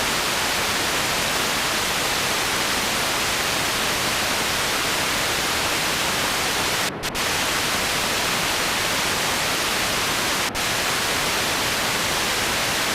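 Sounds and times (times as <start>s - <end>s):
static hiss: 0.0s - 12.9s.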